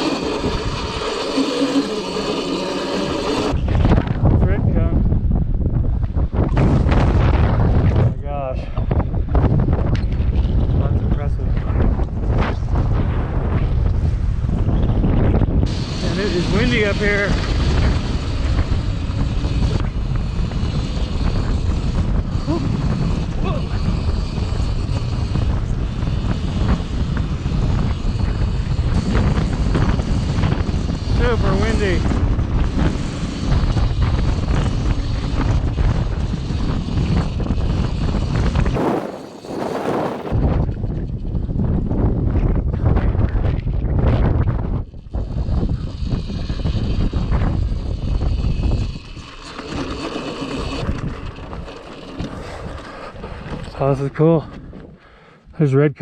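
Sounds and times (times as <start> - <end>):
electric dirt bike motor whine: 0.0 - 4.1, 12.0 - 42.1, 44.2 - 53.7
wind buffeting microphone: 0.0 - 55.4.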